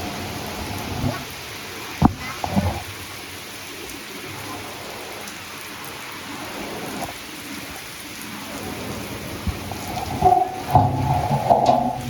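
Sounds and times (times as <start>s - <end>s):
heavy rain pouring: 0.0s - 12.0s
sharp knocks: 10.1s - 12.0s.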